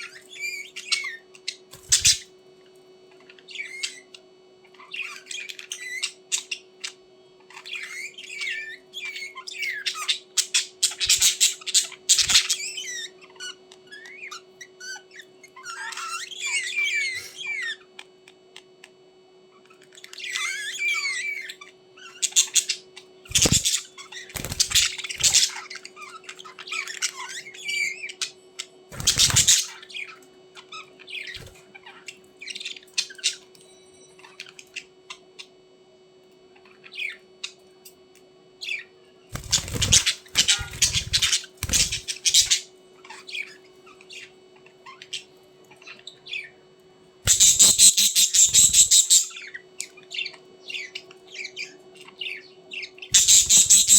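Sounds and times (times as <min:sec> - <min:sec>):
budgerigars chirping and squawking: 0:00.0 - 0:18.9, 0:19.5 - 0:35.6, 0:36.5 - 0:38.0, 0:38.6 - 0:46.6, 0:47.2 - 0:53.9
steady low hum: 0:00.0 - 0:53.9
wing flapping: 0:23.3 - 0:23.7, 0:24.3 - 0:25.4, 0:29.0 - 0:29.6, 0:39.4 - 0:42.0.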